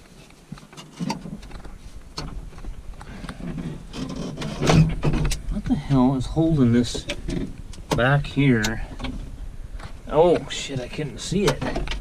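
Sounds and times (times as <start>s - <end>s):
metal parts knocking and clunking: 3.3s - 5.5s, 11.3s - 12.0s.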